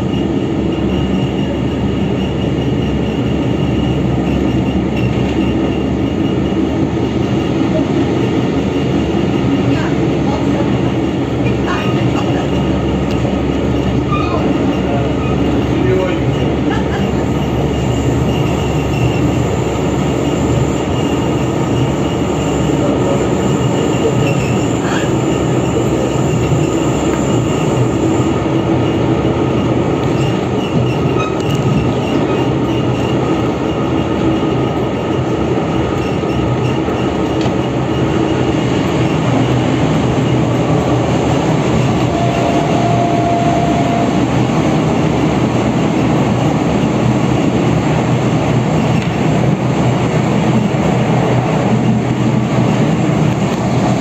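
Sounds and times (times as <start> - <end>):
high wheel squeal: 0.0 - 45.1
train wheels rumbling on rail: 0.0 - 54.0.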